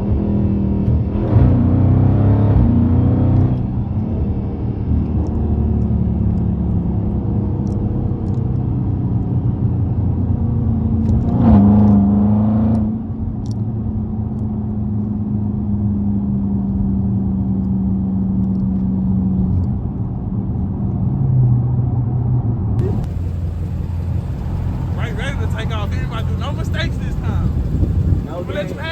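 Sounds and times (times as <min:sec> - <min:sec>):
car engine running: 0:22.8 - 0:28.9.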